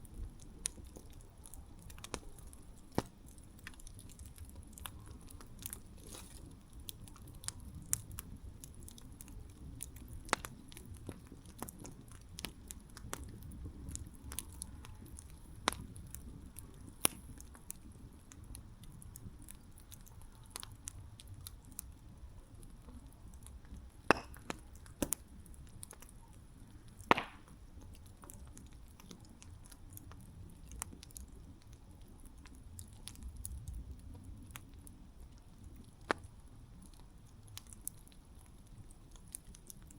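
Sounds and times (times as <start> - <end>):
burning wood crackling and popping: 0.0 - 39.9
low rumble of flames: 0.0 - 39.9.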